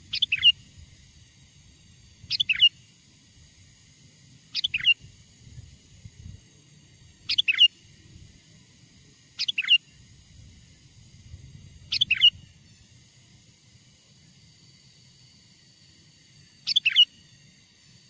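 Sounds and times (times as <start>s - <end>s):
bulbul calling: 0.0s - 0.6s, 2.2s - 2.8s, 4.5s - 5.1s, 7.2s - 7.8s, 9.4s - 9.9s, 11.8s - 12.5s, 16.6s - 17.1s.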